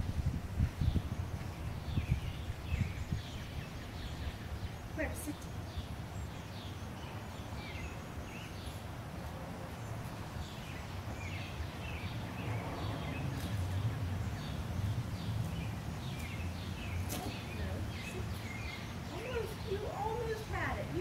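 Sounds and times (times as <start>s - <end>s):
steady low rumble: 0.0s - 6.2s
birds chirping: 0.6s - 21.0s.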